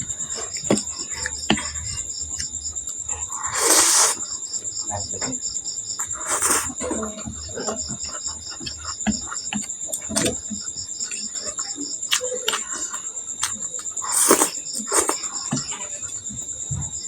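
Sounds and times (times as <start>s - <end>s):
cricket chirping: 0.0s - 17.0s
chewing and mouth clicks: 0.2s - 4.3s, 6.0s - 16.6s
slurp: 3.3s - 4.3s, 6.2s - 6.8s, 12.2s - 16.0s.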